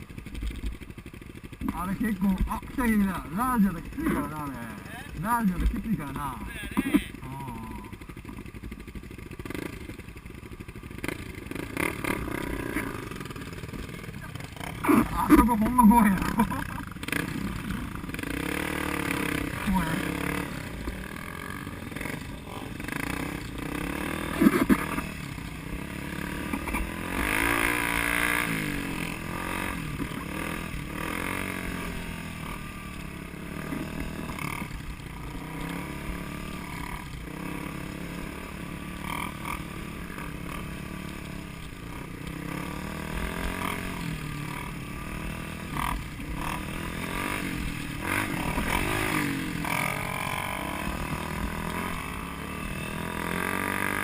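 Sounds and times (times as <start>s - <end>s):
road noise: 0.0s - 54.0s
car engine revving: 11.0s - 32.7s.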